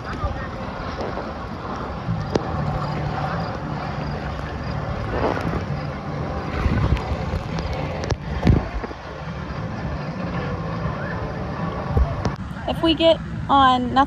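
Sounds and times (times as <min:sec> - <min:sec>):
water sloshing and splashing: 0:00.0 - 0:10.5
wind buffeting microphone: 0:00.0 - 0:14.0.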